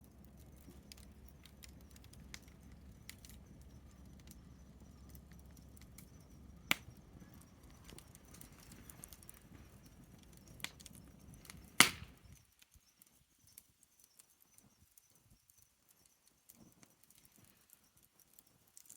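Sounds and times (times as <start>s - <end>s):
wood fire crackling and popping: 0.0s - 18.9s.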